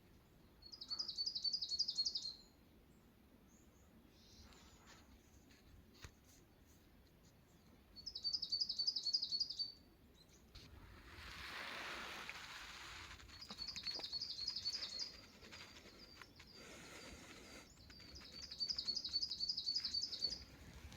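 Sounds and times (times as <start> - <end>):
songbird trilling: 8.0 - 9.8, 13.3 - 20.7
soft rushing hiss: 10.4 - 20.9.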